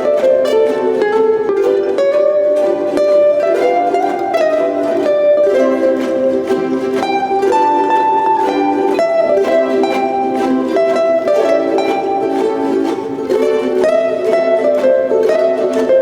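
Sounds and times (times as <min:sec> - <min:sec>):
plucked melody line: 0:00.0 - 0:16.0
ukulele ensemble strumming: 0:00.0 - 0:16.0.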